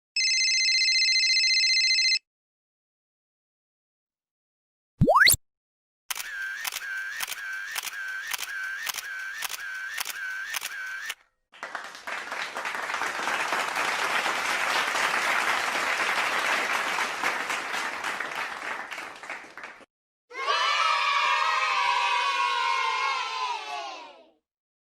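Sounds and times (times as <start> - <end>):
camera shutter clicking: 6.1 - 11.2
applause: 11.5 - 19.9.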